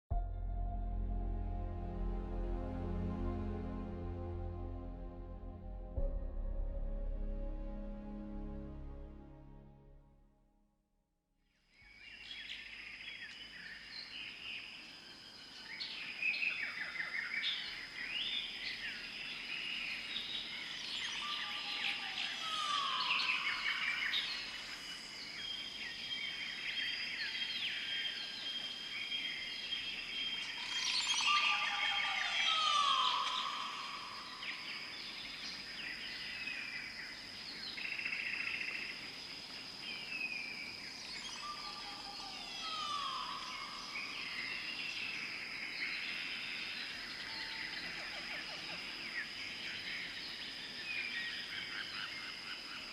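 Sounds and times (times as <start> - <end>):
songbirds chirping and trilling: 11.8 - 52.9.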